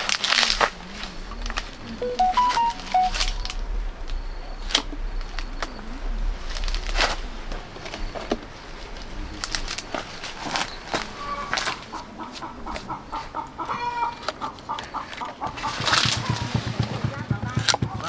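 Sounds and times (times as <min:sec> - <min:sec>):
sharp knocks and clicks: 0:15.8 - 0:18.0.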